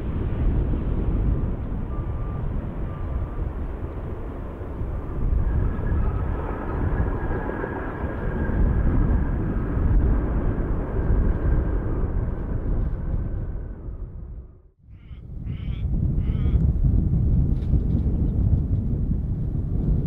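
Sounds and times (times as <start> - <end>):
turbine whine: 0.0 - 14.8
jet engines rumbling: 0.0 - 20.0.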